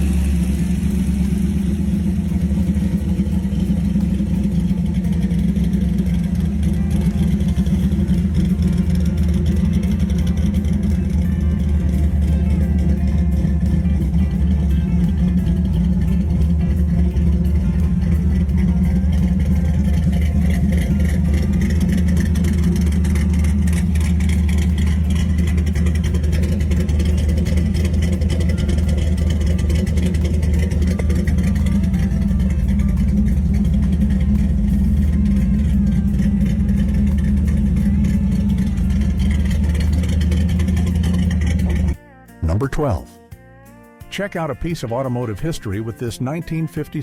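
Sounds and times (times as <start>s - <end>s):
car engine rumbling steadily: 0.0s - 43.0s.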